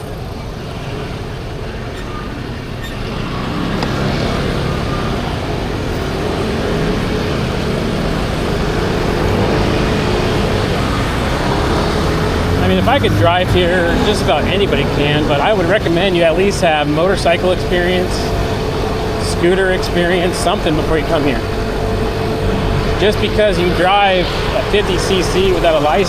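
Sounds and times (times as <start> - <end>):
low drone of engines: 0.0 - 26.0
motor scooter engine: 0.0 - 26.0
traffic noise: 0.0 - 26.0
wind noise: 20.3 - 26.0.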